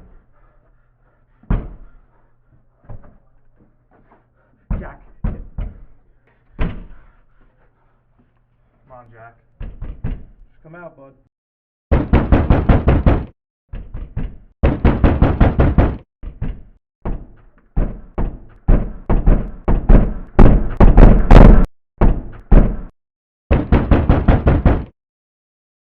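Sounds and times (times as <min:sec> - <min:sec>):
fists pounding on door: 0:01.4 - 0:01.9, 0:04.7 - 0:06.0, 0:06.6 - 0:07.0, 0:09.6 - 0:10.4, 0:11.9 - 0:22.9, 0:23.5 - 0:24.9.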